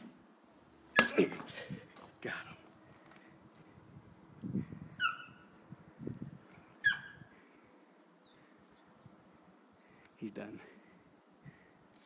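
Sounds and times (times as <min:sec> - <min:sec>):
bird chirps: 0:04.9 - 0:05.6, 0:06.7 - 0:07.2, 0:08.0 - 0:09.5.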